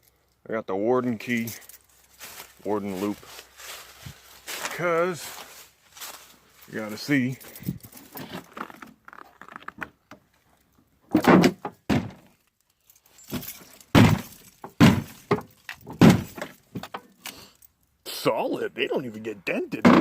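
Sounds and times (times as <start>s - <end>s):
metallic thunks on truck body: 11.1s - 12.3s, 13.3s - 16.9s.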